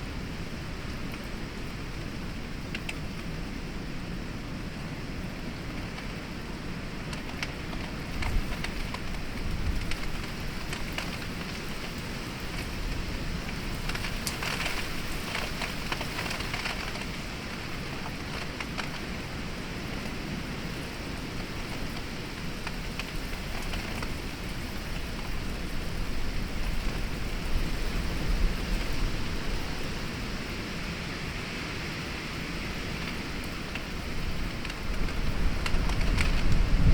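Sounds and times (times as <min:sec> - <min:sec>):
heavy rain falling: 0:00.0 - 0:36.9
wind gusts: 0:00.0 - 0:36.9
raindrops tapping: 0:06.9 - 0:31.0, 0:31.8 - 0:36.9.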